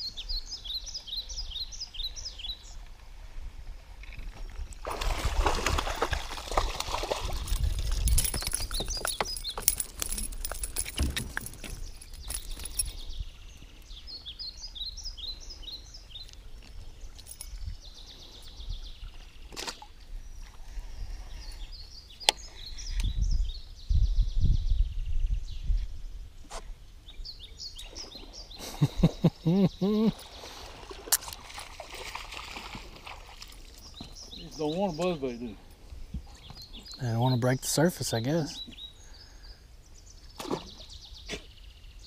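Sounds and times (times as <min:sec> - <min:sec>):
small birds chirping: 0:06.0 - 0:42.0
low thuds and rumbles of boat: 0:06.6 - 0:12.5
sharp clicks of fishing gear: 0:07.4 - 0:13.0.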